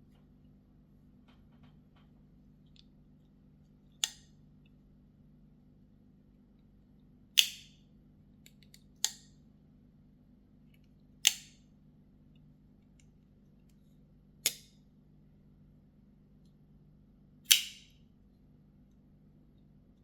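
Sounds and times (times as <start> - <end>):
folding knife snapping open and shut: 4.0 - 4.3, 7.4 - 7.7, 11.2 - 11.6, 14.4 - 14.8, 17.5 - 18.0.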